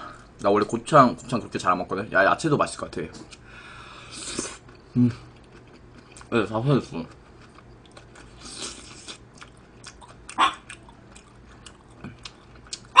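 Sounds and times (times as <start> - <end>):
person chewing food: 4.1 - 6.3, 7.0 - 13.0.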